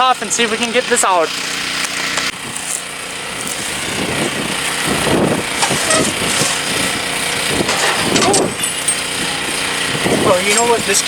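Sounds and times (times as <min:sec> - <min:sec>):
small engine running: 0:00.0 - 0:11.0
knocks and scraping on parts: 0:05.4 - 0:10.8.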